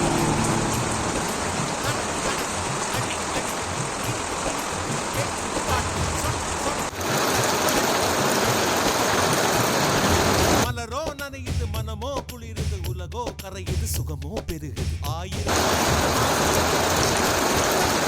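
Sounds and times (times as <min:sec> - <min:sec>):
steady rain falling: 0:00.0 - 0:10.7, 0:15.5 - 0:18.0.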